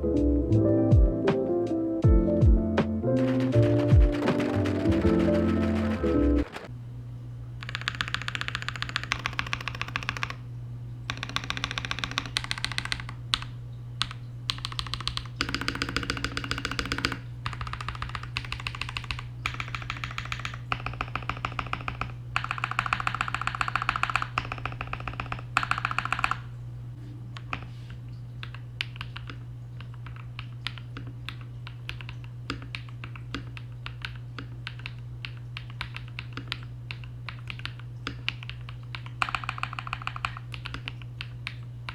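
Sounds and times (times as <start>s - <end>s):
steady low hum: 0.0s - 7.8s, 21.9s - 41.9s
mechanical keyboard typing: 3.2s - 6.7s, 7.6s - 10.4s, 11.1s - 26.6s, 28.4s - 41.9s.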